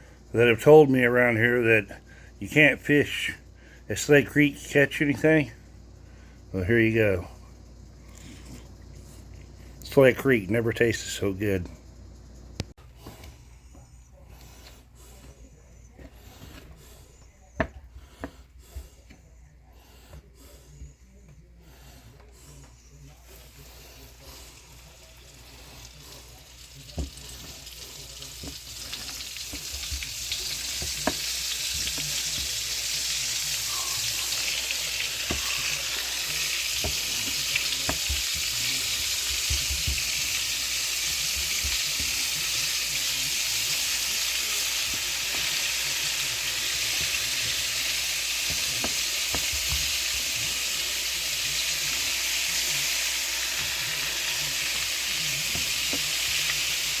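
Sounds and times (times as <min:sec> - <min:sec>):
fish frying in hot oil: 0:24.4 - 0:57.0.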